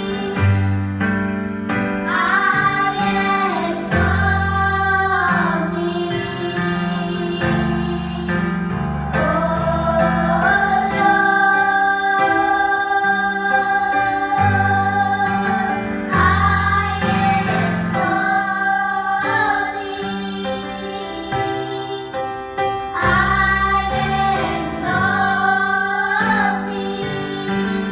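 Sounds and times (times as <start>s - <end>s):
instrumental accompaniment: 0.0s - 27.9s.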